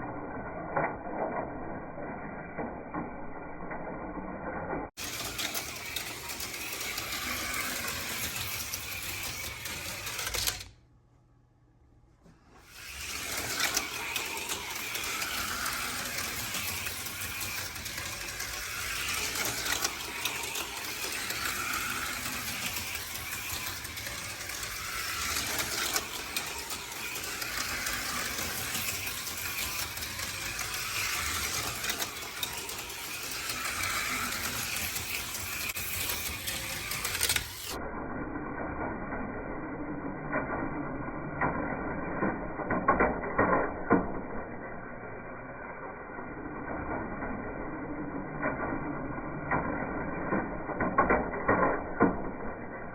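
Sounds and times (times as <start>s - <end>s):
toy car chassis clattering: 3.9s - 10.8s, 12.6s - 37.8s, 39.2s - 52.9s
small electric motors whirring: 5.0s - 10.7s, 12.6s - 37.8s.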